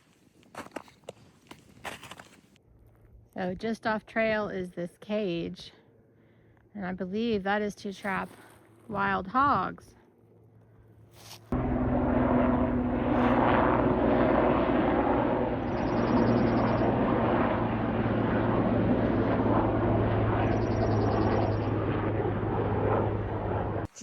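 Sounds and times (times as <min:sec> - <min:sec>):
helicopter flying overhead: 0:07.1 - 0:23.9.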